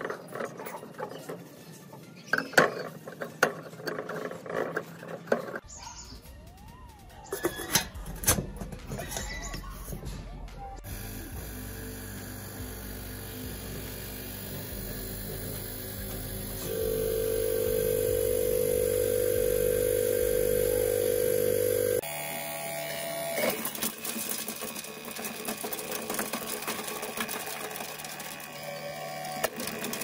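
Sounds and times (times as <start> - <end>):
meat mincer motor humming: 10.8 - 30.0
rattling clicking mincer: 23.4 - 30.0.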